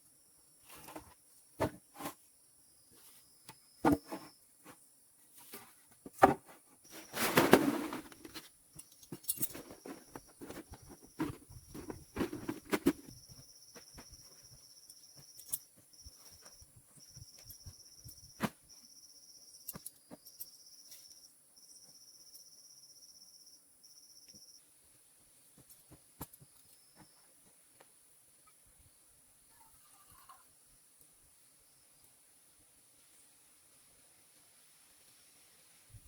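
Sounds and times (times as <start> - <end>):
handling knocks and rustles: 3.0 - 18.8
insects chirring: 6.8 - 32.2.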